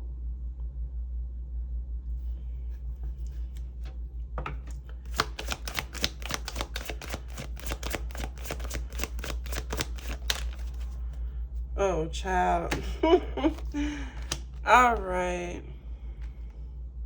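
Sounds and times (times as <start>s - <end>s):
steady low hum: 0.0s - 17.0s
cards being shuffled: 2.2s - 11.2s, 12.6s - 15.0s.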